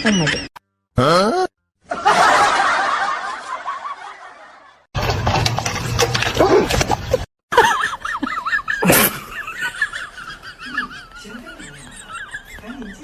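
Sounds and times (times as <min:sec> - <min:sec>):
people laughing: 0:01.9 - 0:04.8, 0:07.5 - 0:13.0.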